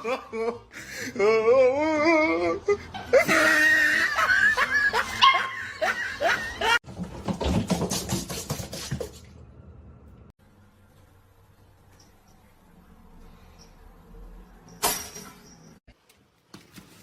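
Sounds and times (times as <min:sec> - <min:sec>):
dog yelping: 0:05.2 - 0:05.6.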